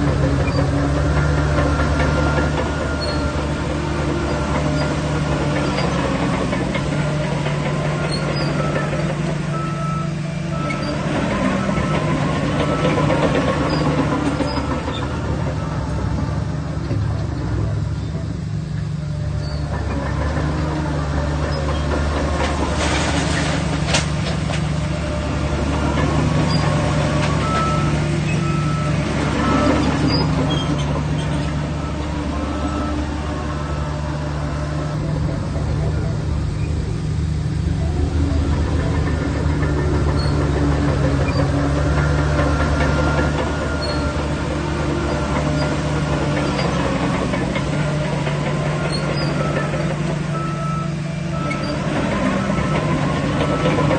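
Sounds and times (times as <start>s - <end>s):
bulldozer diesel engine droning: 0.0s - 53.9s
rattling clatter: 35.0s - 50.5s.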